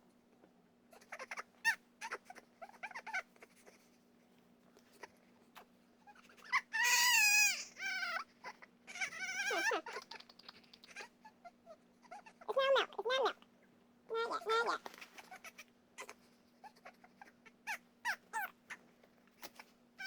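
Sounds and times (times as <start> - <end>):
faint steady hum: 0.0 - 20.0
baby crying: 6.4 - 9.9.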